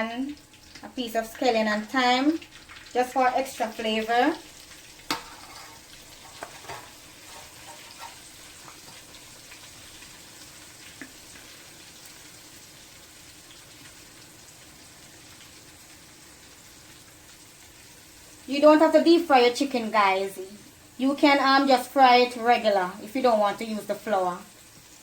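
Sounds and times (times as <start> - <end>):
chicken deep-frying in oil: 0.0 - 25.0.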